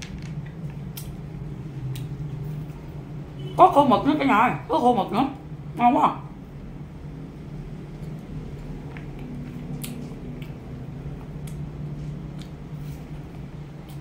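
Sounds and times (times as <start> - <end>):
wet chewing mouth sounds: 8.0 - 14.0.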